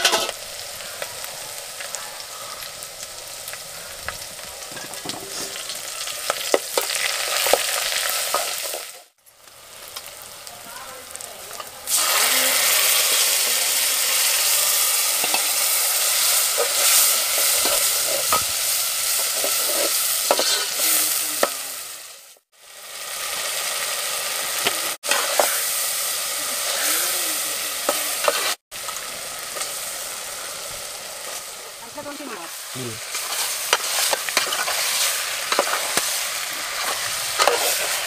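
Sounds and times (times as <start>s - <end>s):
liquid poured into sizzling oil: 11.9s - 15.1s
metal spoon scraping a pot: 19.2s - 20.8s, 33.1s - 36.0s, 36.8s - 38.0s.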